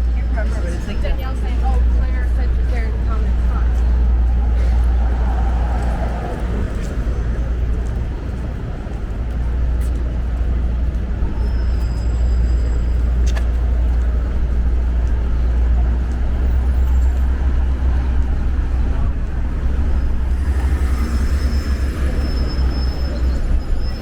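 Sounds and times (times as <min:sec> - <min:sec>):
traffic rumble: 0:00.0 - 0:24.0.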